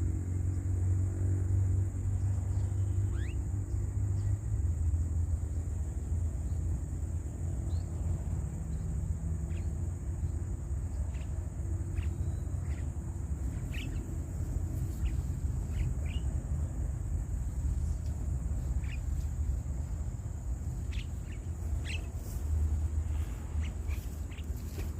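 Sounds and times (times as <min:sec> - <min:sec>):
bird chirps: 0:02.5 - 0:04.4, 0:08.7 - 0:16.3, 0:18.6 - 0:19.5, 0:20.6 - 0:24.9.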